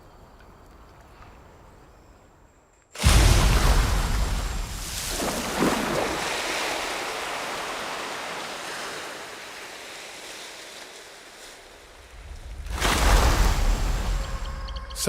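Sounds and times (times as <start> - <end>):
monkey splashing into river: 3.0 - 14.4
rushing disturbed water: 3.0 - 15.0.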